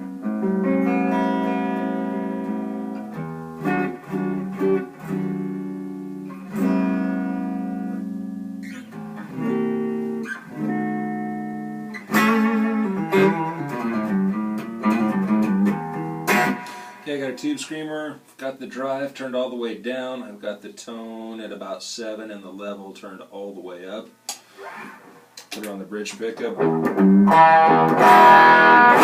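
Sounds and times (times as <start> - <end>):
clean electric guitar: 0.0 - 17.7, 24.8 - 29.0.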